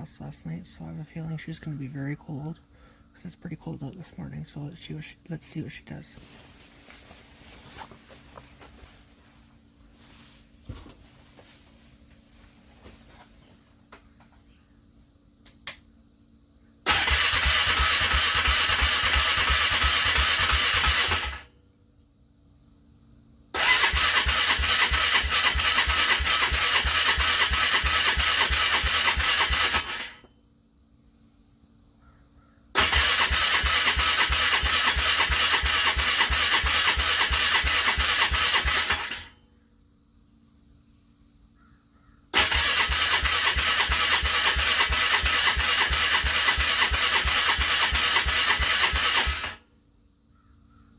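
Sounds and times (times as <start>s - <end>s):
starter motor cranking engine: 16.8s - 21.5s, 23.5s - 30.3s, 32.8s - 39.4s, 42.3s - 49.6s.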